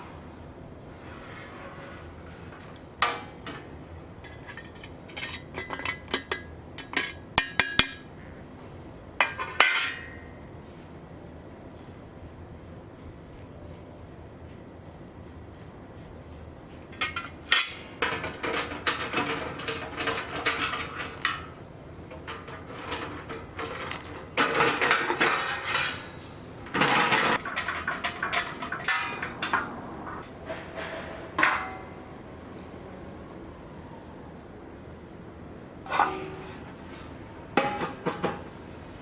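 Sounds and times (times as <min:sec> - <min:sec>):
metal objects clattering: 0:02.3 - 0:08.1, 0:16.9 - 0:32.2, 0:35.9 - 0:36.8, 0:37.6 - 0:38.6.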